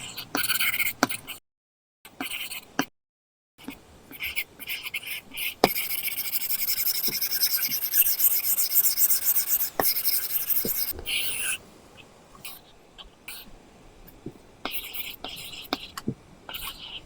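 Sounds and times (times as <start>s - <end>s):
stylus scratching on screen: 4.8s - 11.6s
stylus tapping: 5.7s - 11.0s.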